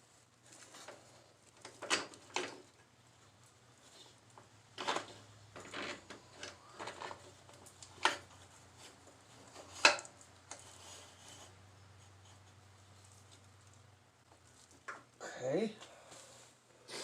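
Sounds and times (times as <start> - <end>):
metal parts clunking and clicking: 1.6 - 2.9, 4.8 - 8.3.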